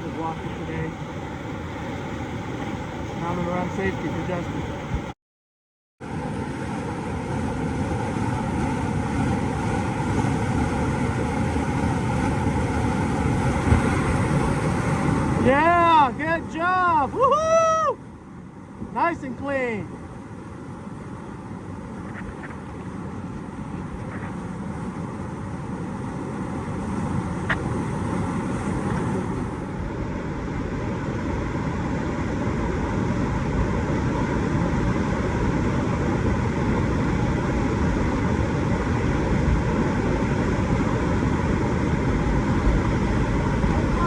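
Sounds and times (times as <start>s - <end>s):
rushing whitewater: 0.0s - 5.1s, 26.4s - 44.0s.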